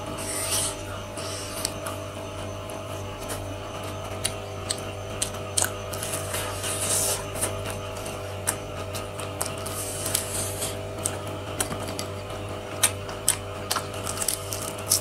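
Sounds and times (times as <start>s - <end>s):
person chewing crunchy food: 0.0s - 15.0s
steady low hum: 0.0s - 15.0s
mouth clicks: 4.1s - 15.0s.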